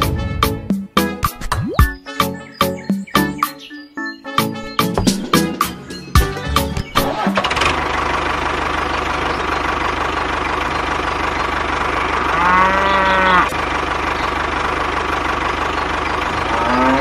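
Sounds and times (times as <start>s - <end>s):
tractor engine running: 4.7s - 17.0s
cow mooing: 12.2s - 13.6s, 16.3s - 17.0s.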